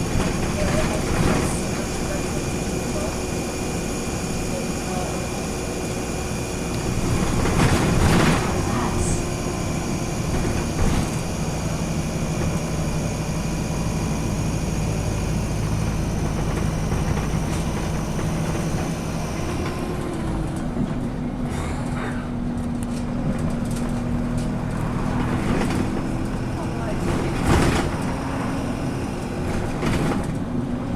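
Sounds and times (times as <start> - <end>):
rushing noise: 0.0 - 20.5
bus engine droning: 0.0 - 30.9.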